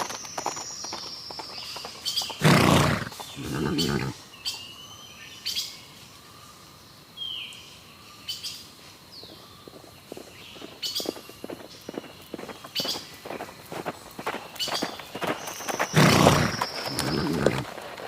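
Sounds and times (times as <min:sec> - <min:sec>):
birds chirping: 0:00.0 - 0:18.0
horse snorting: 0:02.3 - 0:04.2, 0:15.9 - 0:17.9.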